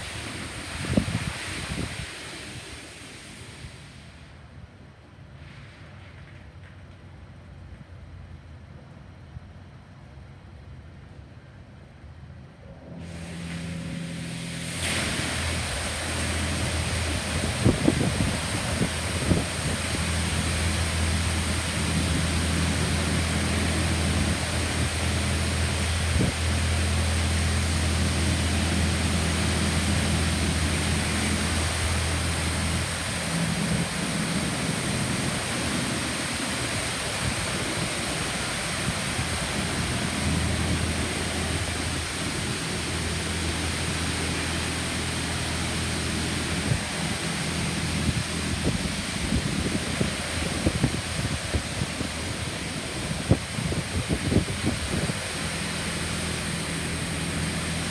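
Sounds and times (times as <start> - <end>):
car wash spraying water: 0.0 - 4.6, 13.0 - 57.9
low hum: 12.6 - 57.9.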